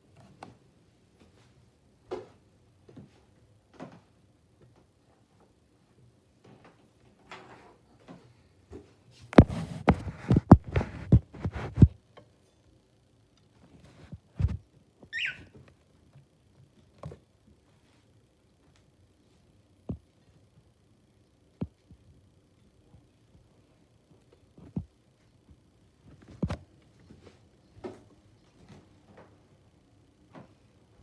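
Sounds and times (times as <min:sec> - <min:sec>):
bird chirp: 0:15.1 - 0:15.5.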